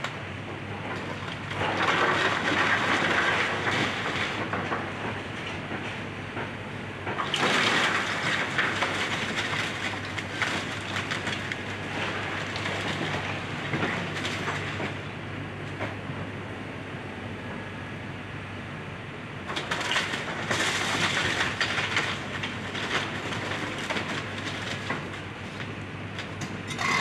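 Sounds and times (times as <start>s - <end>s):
wood and debris crunching: 7.2s - 14.9s, 19.5s - 27.0s
diesel engine running: 19.0s - 27.0s.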